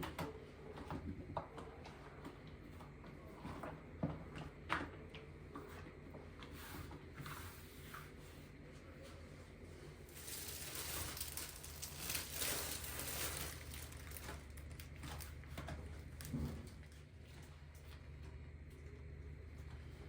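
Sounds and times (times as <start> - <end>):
rustling and crinkling: 5.6 - 18.4.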